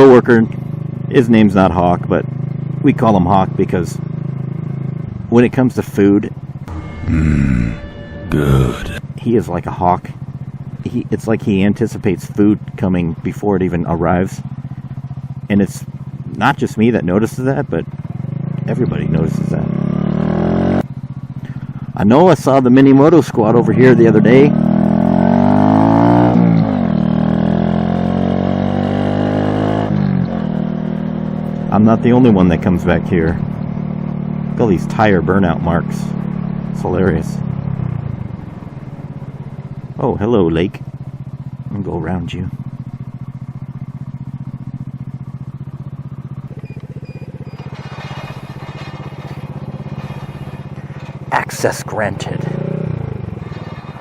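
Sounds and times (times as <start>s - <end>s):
motorbike engine running: 0.0s - 54.0s.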